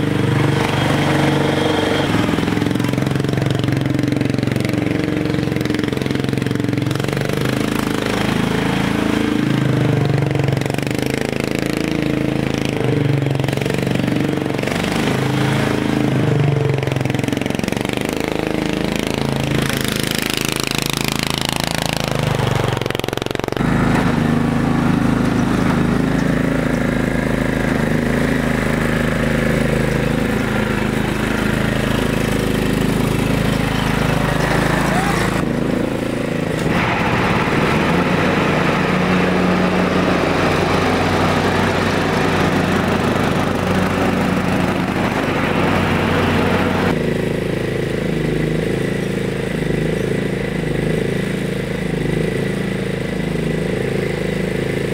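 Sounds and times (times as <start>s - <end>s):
tractor engine running: 0.0s - 54.9s
falling whine: 30.0s - 47.0s.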